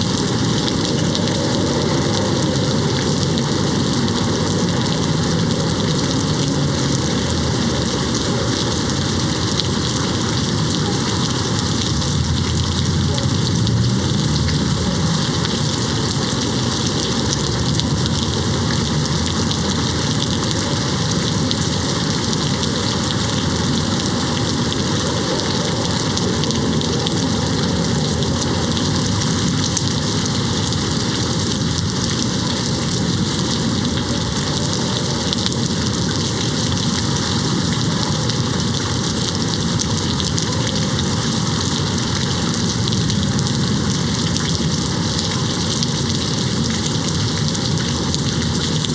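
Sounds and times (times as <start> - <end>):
rain against a window: 0.0 - 48.9.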